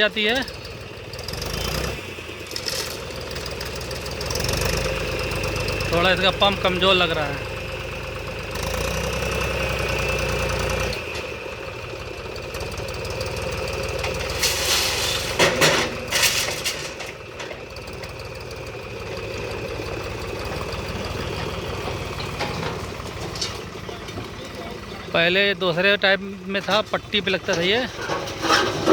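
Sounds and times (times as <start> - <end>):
tractor diesel engine running: 0.0 - 28.9
loud clattering knocks: 15.3 - 17.7.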